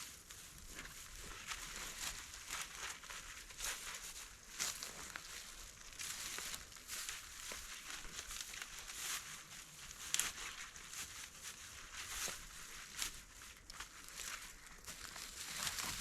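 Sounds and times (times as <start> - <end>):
rustling and crackling: 0.0 - 16.0
dry scrapes and snaps: 13.0 - 16.0.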